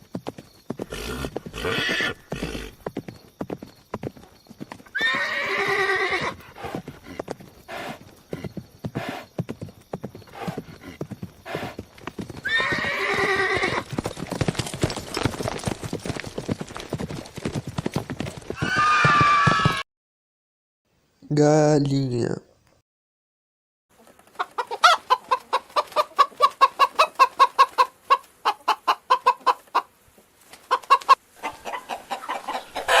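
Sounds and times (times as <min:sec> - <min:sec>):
hooves clip-clopping: 0:00.0 - 0:19.8
horse whinnying: 0:00.8 - 0:02.8, 0:04.9 - 0:06.8, 0:12.4 - 0:13.9, 0:18.5 - 0:19.8.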